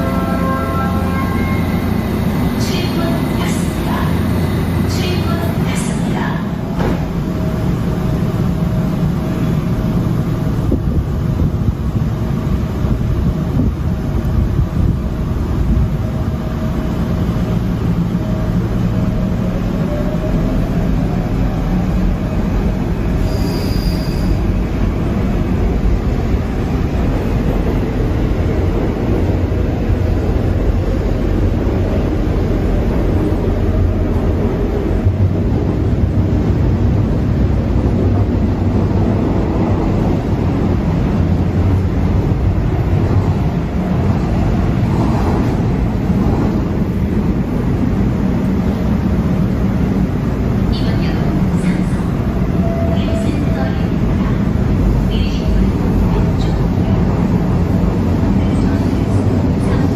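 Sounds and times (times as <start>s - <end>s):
subway train rumbling: 0.0s - 59.9s.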